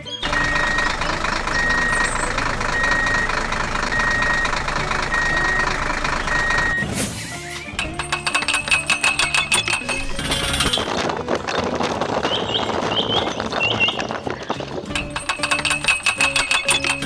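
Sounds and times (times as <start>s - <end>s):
reversing alarm beeping: 0.0s - 7.0s, 7.7s - 10.9s, 15.0s - 17.0s
engine running: 0.0s - 12.9s, 14.8s - 17.0s.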